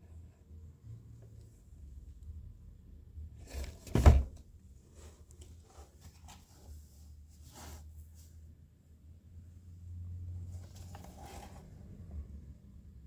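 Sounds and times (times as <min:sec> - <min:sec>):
loud handling thump: 0:03.8 - 0:04.4.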